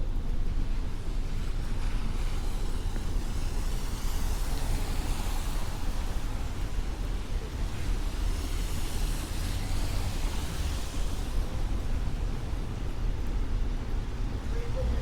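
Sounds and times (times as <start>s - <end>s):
traffic rumble: 0.0s - 15.0s
tyre hiss on wet pavement: 1.9s - 12.6s.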